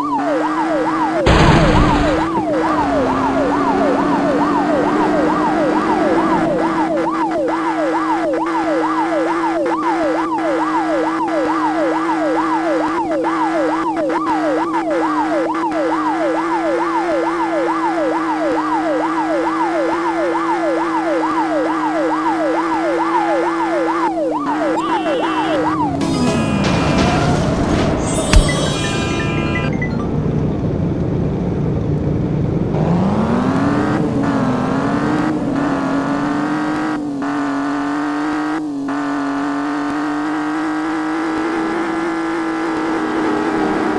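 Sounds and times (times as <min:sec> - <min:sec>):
police siren yelping: 0:00.0 - 0:30.0.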